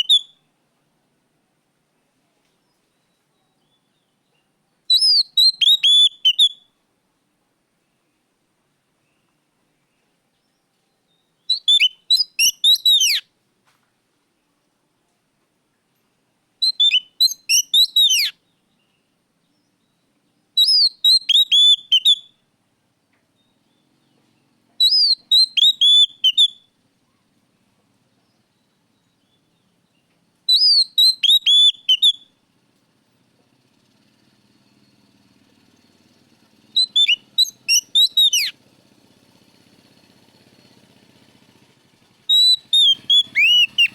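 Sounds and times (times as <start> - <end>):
bird song with whistled notes: 0.0 - 0.5, 2.6 - 6.8, 9.0 - 13.3, 16.6 - 22.5, 23.3 - 26.8, 28.1 - 32.4, 34.5 - 38.6, 42.3 - 43.9
faint low hum: 21.8 - 30.6.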